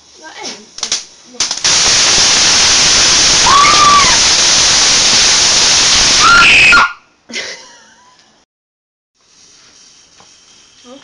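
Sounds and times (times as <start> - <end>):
firework hissing: 0.0 - 6.9, 9.2 - 11.0.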